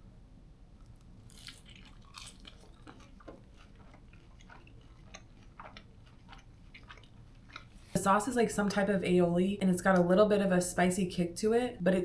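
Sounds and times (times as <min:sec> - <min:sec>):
chewing crispy fried onions: 0:00.8 - 0:08.0.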